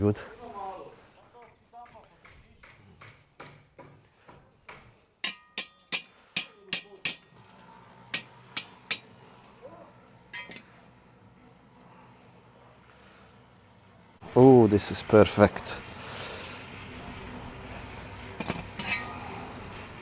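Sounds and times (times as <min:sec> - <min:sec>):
metal cookware clinking: 0:05.2 - 0:07.4, 0:08.1 - 0:09.1, 0:10.4 - 0:10.7, 0:18.5 - 0:19.3.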